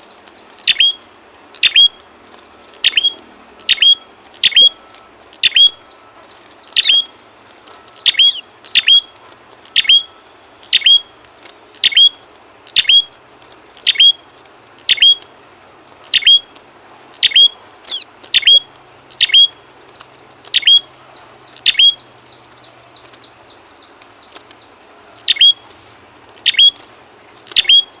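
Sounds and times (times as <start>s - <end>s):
bird sharp sweeping calls: 0.0s - 2.0s, 2.8s - 11.1s, 11.8s - 13.1s, 13.8s - 14.2s, 14.8s - 15.2s, 16.1s - 16.5s, 17.2s - 25.7s, 26.4s - 26.8s, 27.5s - 28.0s.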